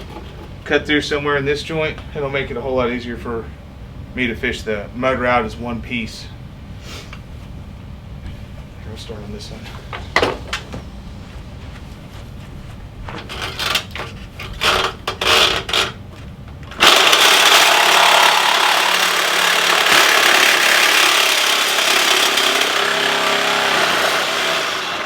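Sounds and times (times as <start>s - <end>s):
power tool cutting steel tube: 16.8s - 25.0s.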